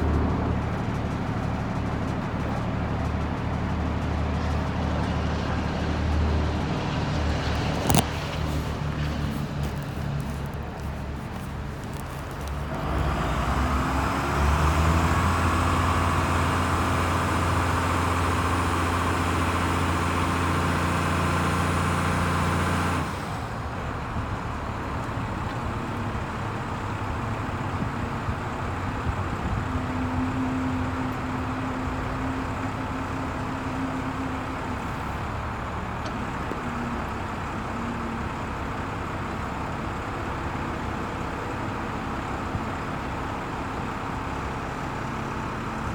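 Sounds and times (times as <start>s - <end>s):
truck engine revving: 0.0s - 24.0s
high engine whine: 0.0s - 38.9s.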